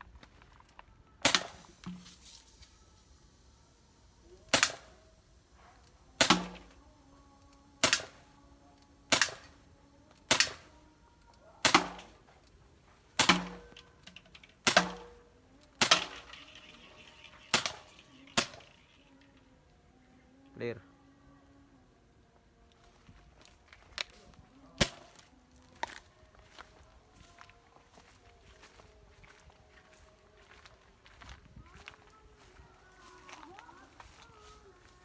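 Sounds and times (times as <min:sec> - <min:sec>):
air pistol shots: 0:01.2 - 0:19.4, 0:24.8 - 0:25.2.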